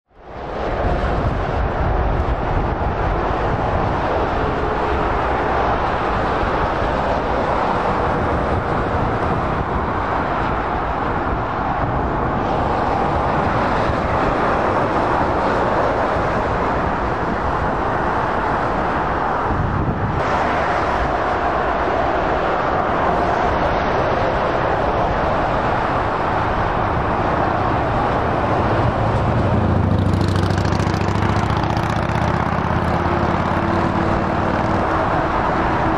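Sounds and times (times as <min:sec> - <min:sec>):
high-speed electric train passing: 0:00.2 - 0:35.9.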